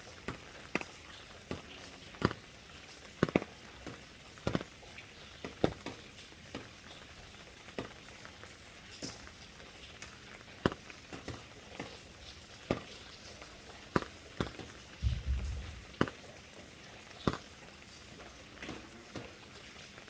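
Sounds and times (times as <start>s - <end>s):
large raindrops ticking: 0.0s - 20.0s
light rain hiss: 0.0s - 20.0s.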